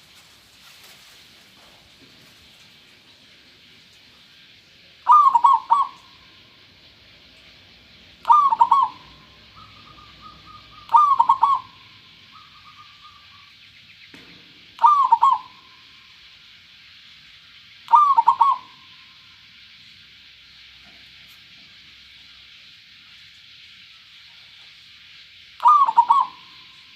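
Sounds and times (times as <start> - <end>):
dove cooing: 5.0 - 6.2, 8.2 - 13.5, 14.8 - 15.7, 17.9 - 18.9, 25.6 - 26.7.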